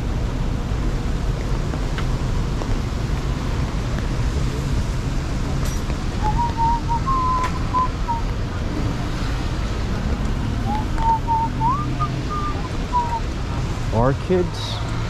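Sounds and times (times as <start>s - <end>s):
city traffic rumble: 0.0s - 15.0s
high whistled notes: 6.2s - 8.2s, 10.6s - 13.2s.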